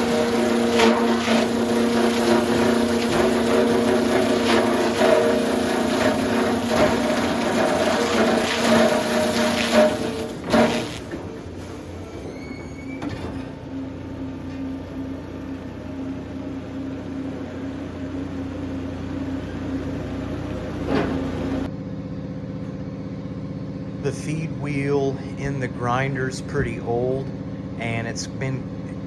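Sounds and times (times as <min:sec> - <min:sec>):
sawmill machinery clattering: 0:00.0 - 0:21.7
machinery humming: 0:00.0 - 0:29.0.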